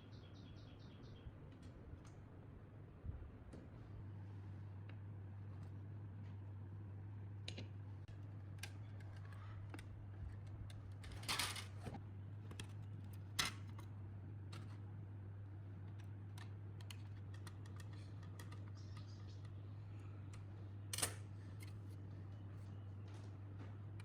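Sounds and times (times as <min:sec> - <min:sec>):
steady low hum: 0:00.0 - 0:24.0
small parts clicking and tapping: 0:07.5 - 0:11.8, 0:15.8 - 0:19.6.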